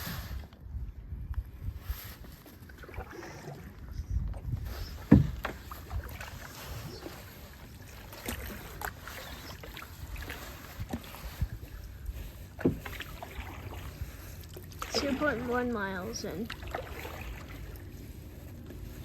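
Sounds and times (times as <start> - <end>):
water splashes: 2.4 - 19.0
paddle knocks on kayak: 5.0 - 6.2, 12.6 - 13.8.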